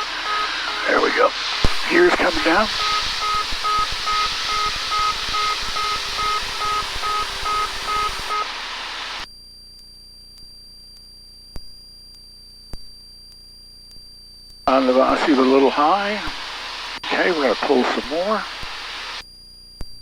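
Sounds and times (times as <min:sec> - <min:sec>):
aircraft cabin engine noise: 0:00.0 - 0:09.2, 0:14.7 - 0:19.2.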